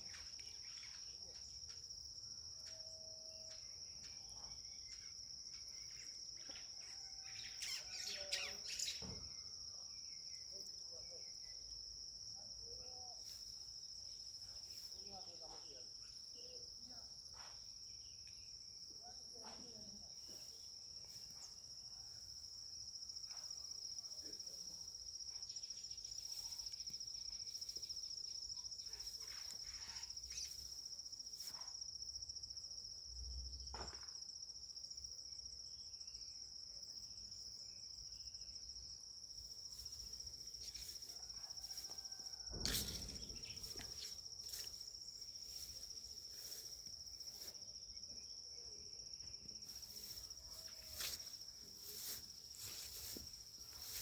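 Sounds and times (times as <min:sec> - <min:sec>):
insect trilling: 0:05.8 - 0:09.0, 0:28.5 - 0:30.8
brief thump: 0:42.5 - 0:44.8.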